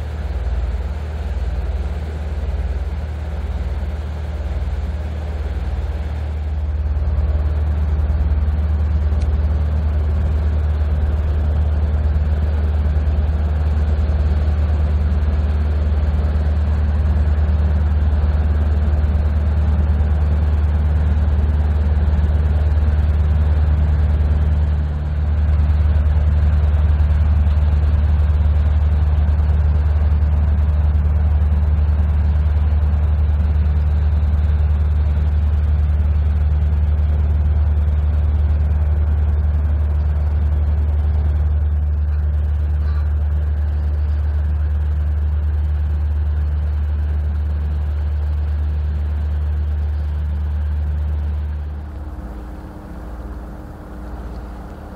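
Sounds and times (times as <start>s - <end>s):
boat diesel engine droning: 0.0s - 54.9s.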